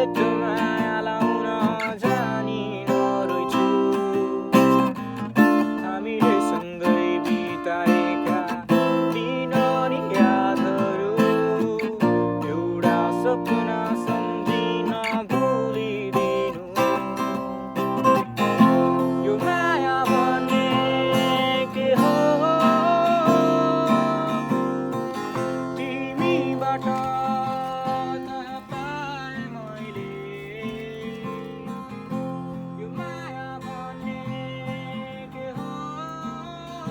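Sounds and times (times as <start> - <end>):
strummed acoustic guitar music: 0.0 - 36.9.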